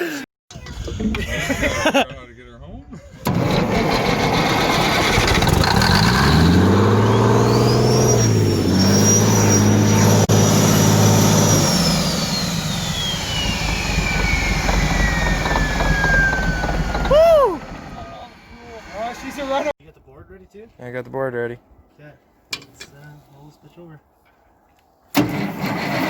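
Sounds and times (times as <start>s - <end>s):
high whine winding down: 3.2s - 19.7s
truck engine revving high: 3.2s - 19.7s.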